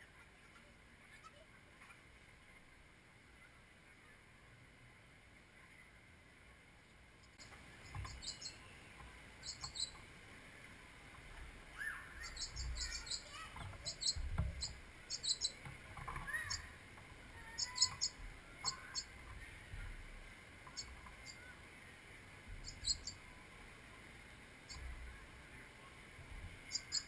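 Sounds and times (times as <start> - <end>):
small birds chirping: 7.2 - 23.6, 24.6 - 27.0
lower gliding bird calls: 7.4 - 10.7, 11.3 - 20.0, 20.6 - 21.6, 22.5 - 23.4, 26.6 - 27.0.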